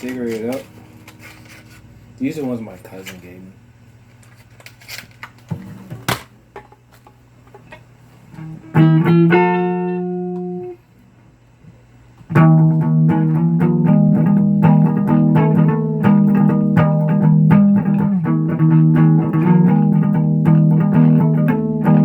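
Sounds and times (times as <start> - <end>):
plucked guitar music: 8.4 - 10.8, 12.3 - 22.0.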